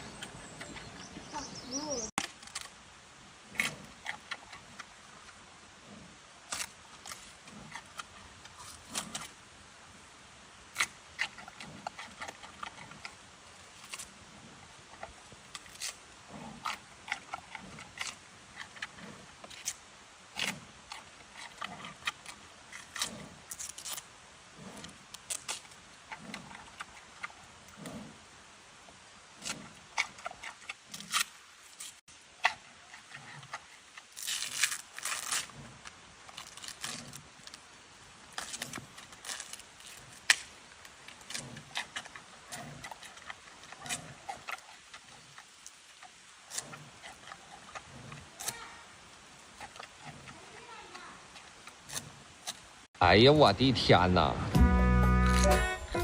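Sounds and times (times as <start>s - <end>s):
panda chewing bamboo: 20.3s - 28.2s, 31.9s - 37.6s, 38.3s - 52.8s.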